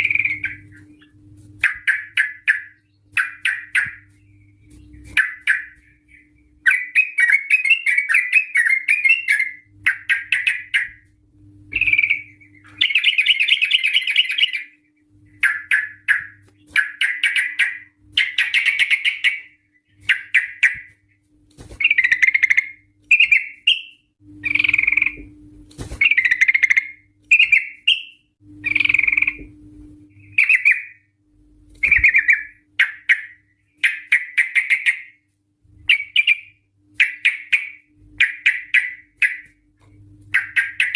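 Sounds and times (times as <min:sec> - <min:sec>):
bird chattering calls: 0:11.7 - 0:14.7, 0:21.8 - 0:25.2, 0:26.0 - 0:29.4, 0:40.3 - 0:40.9.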